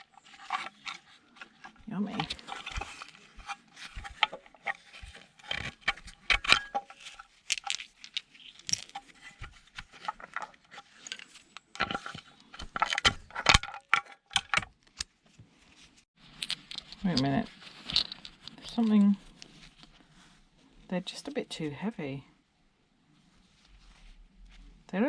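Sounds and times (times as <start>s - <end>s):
small metal screws clinking: 6.5s - 9.1s, 16.4s - 19.5s.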